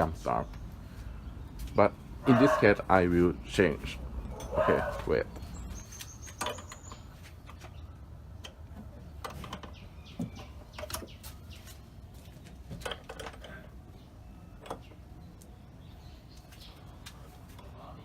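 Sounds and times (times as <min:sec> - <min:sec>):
sharp clicks and knocks: 0:06.0 - 0:11.3, 0:12.4 - 0:13.6.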